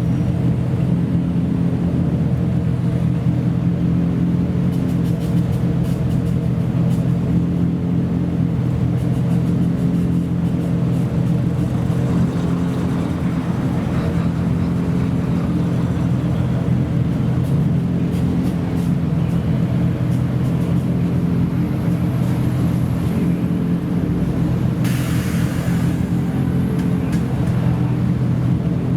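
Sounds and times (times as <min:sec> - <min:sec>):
car engine idling: 0:10.2 - 0:22.8.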